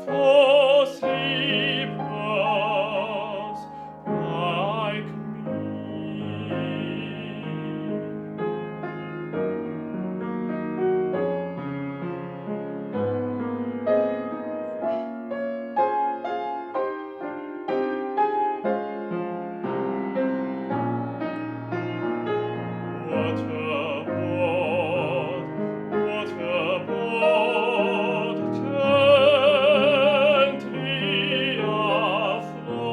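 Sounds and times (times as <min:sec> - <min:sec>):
piano playing: 0:00.0 - 0:32.9.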